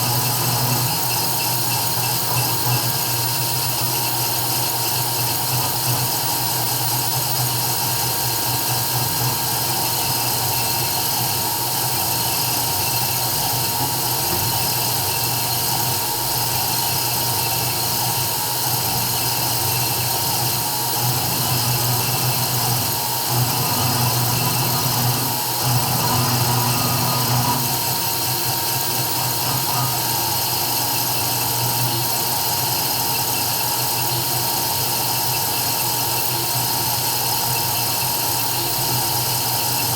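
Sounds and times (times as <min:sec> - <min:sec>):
router spindle whining: 0:00.0 - 0:03.7, 0:09.1 - 0:31.5.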